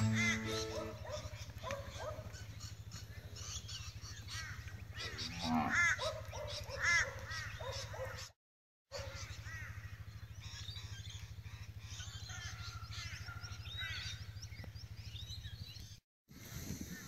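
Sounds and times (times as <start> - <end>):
birds chirping: 0.0 - 5.7, 9.0 - 16.0.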